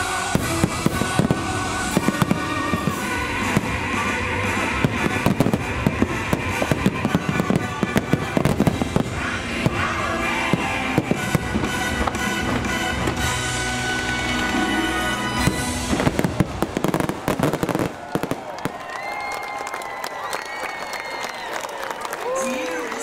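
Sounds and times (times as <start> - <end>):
music soundtrack: 0.0 - 17.9
fireworks bursting: 0.0 - 19.7.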